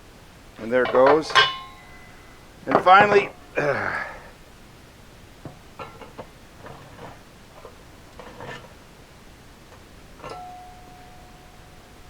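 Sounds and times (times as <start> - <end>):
metal parts clinking and knocking: 0.6 - 3.4
metal ringing after a strike: 0.8 - 3.5.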